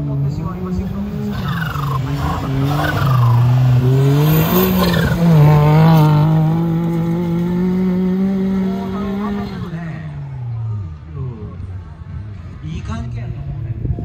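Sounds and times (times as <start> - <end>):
car engine revving hard: 0.9 - 9.8.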